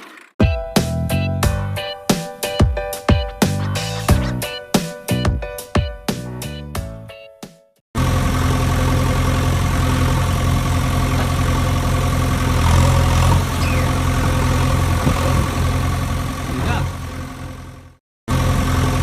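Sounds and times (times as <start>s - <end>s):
engine idling: 8.0s - 19.0s.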